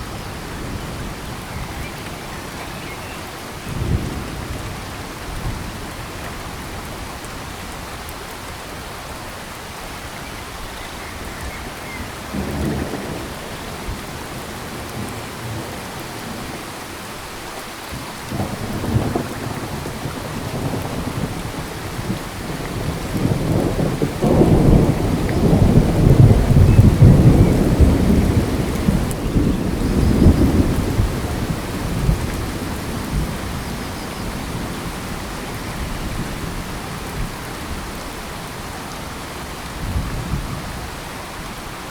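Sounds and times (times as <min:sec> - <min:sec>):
steady rain: 0:00.0 - 0:41.9
thunder rumbling: 0:12.0 - 0:16.4, 0:18.3 - 0:38.0.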